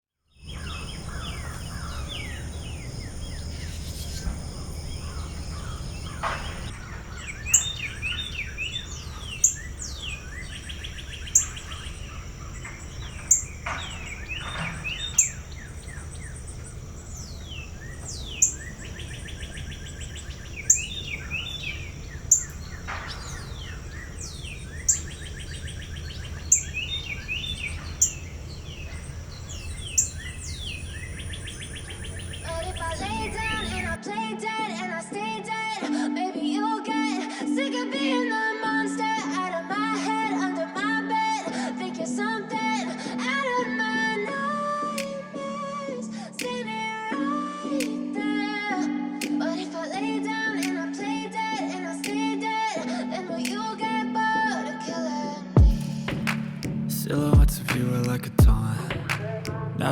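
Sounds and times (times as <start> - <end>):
high insect drone: 0.4 - 34.0
wild birds calling and singing: 0.4 - 34.0, 55.6 - 59.2.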